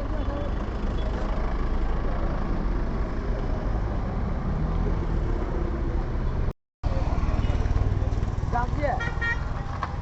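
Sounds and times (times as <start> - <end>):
traffic engines rumbling: 0.0 - 10.0.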